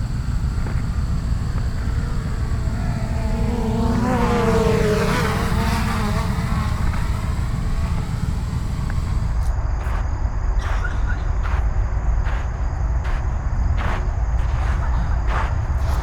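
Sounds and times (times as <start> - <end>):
vehicle engine passing by: 0.0 - 9.5
steady low rumble: 0.0 - 16.0.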